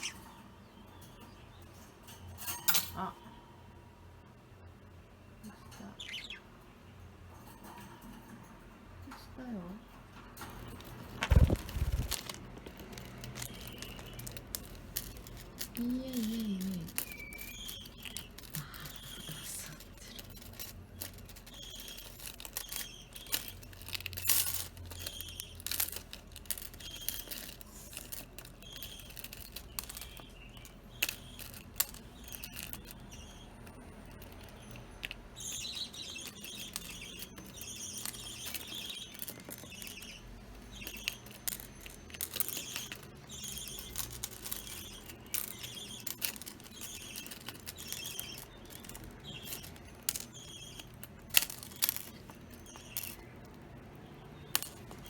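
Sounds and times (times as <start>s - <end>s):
budgerigars chirping: 5.9s - 6.5s, 34.4s - 51.5s.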